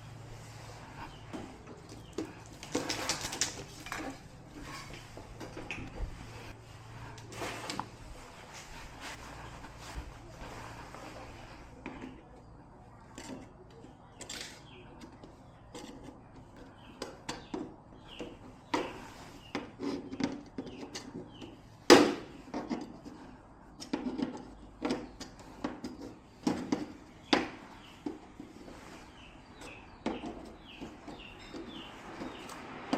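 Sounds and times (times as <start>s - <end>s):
objects being handled: 0.0s - 32.9s.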